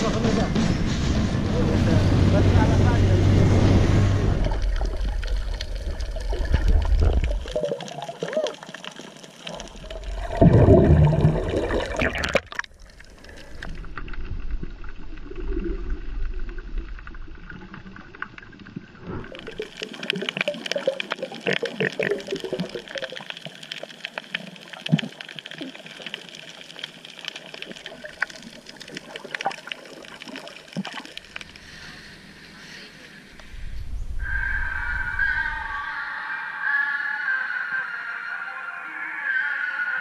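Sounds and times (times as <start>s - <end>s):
water rushing: 1.8s - 32.4s
small water splashes: 4.4s - 32.1s.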